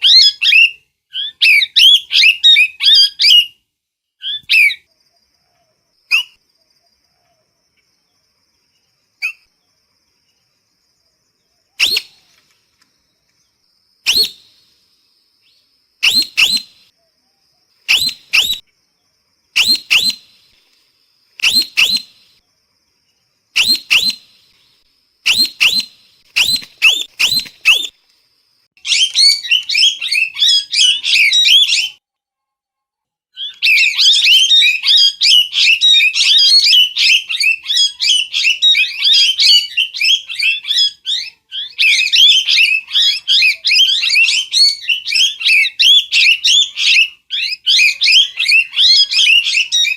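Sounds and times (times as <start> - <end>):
parrot screeching: 0.0 - 3.5, 28.8 - 31.9, 33.4 - 49.9.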